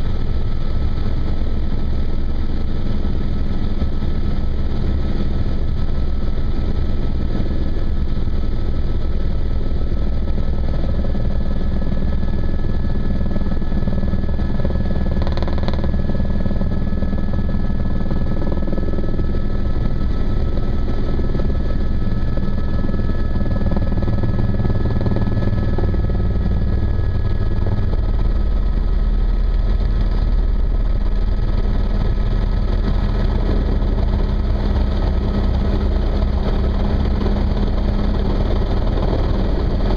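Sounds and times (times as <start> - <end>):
helicopter rotor and engine rumble: 0.0 - 39.9
high whine: 9.6 - 39.9.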